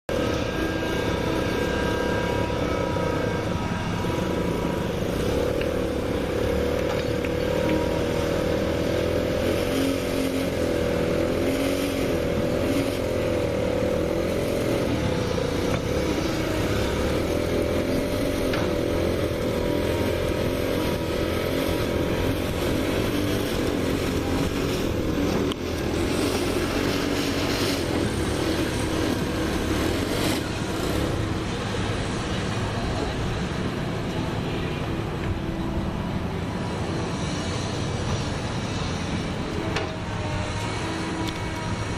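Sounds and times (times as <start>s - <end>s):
small petrol engine running: 0.1s - 41.9s.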